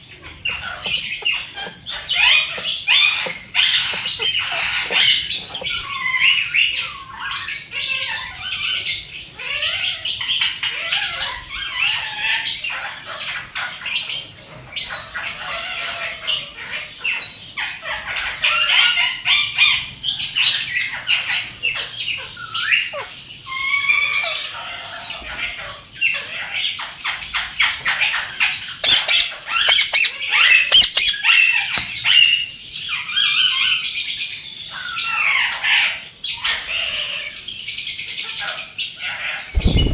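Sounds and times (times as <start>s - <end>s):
parrot chattering: 28.8s - 31.2s.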